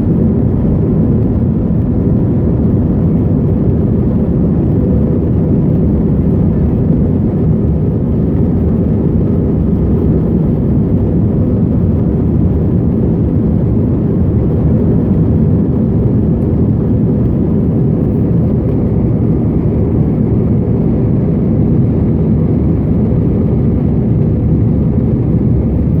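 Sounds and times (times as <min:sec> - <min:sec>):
jet engine and airflow rumble: 0:00.0 - 0:26.0.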